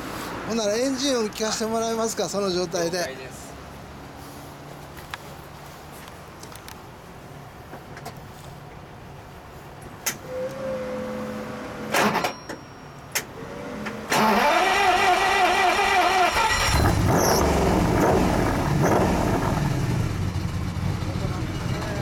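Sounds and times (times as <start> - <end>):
starter motor cranking: 14.1 - 17.7
car engine running: 16.6 - 22.0.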